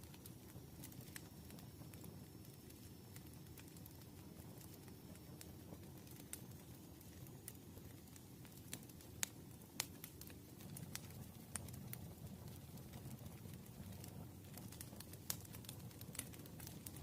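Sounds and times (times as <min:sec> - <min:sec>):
campfire flames rumbling: 0:00.0 - 0:17.0
wood crackling and popping: 0:00.0 - 0:17.0.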